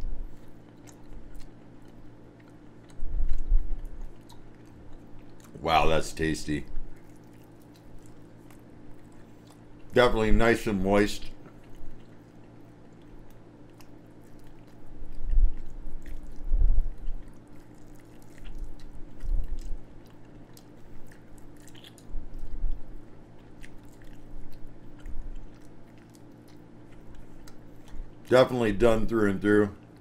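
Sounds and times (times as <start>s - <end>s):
person chewing food: 0.0s - 10.4s, 11.2s - 28.3s
low hum: 0.0s - 30.0s
wet mouth clicks: 11.4s - 22.8s, 23.4s - 28.2s.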